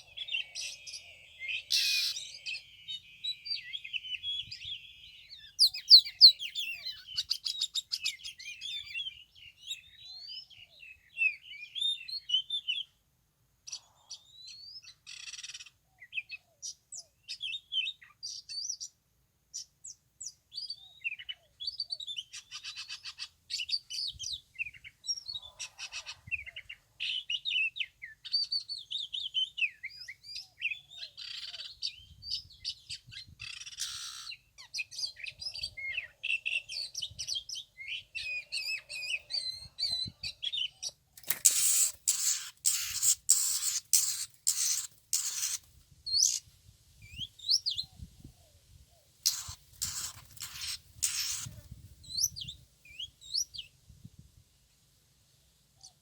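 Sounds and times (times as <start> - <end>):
bird singing whistled phrases: 0.2 - 12.8.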